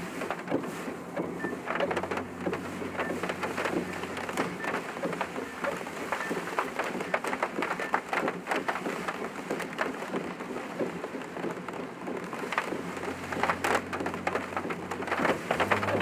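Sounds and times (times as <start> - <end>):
heavy rain on car roof: 0.0 - 16.0.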